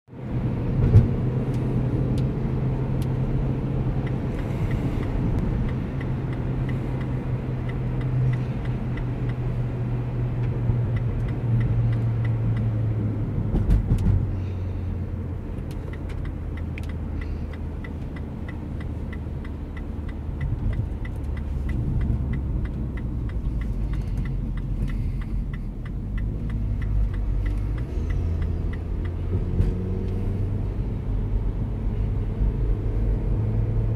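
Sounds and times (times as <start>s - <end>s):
road rumble: 0.1s - 33.9s
car engine running: 0.2s - 33.9s
light ticking: 4.0s - 9.8s, 10.4s - 12.8s, 15.3s - 30.8s.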